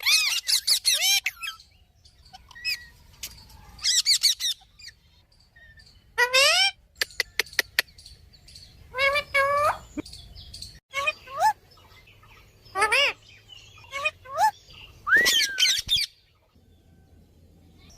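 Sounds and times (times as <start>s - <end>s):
parrots squawking and whistling: 0.0s - 3.0s, 3.7s - 7.8s, 8.9s - 10.0s, 10.9s - 11.6s, 12.7s - 16.1s.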